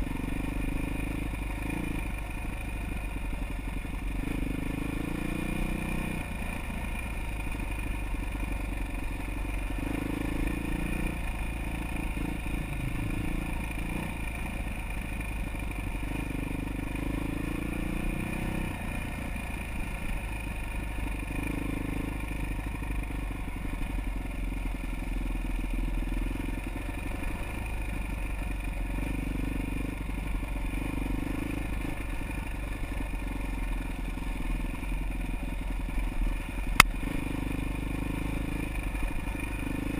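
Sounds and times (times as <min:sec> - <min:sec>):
motorcycle engine revving: 0:00.0 - 0:39.9
motorcycle rattling on rough ground: 0:00.0 - 0:39.9.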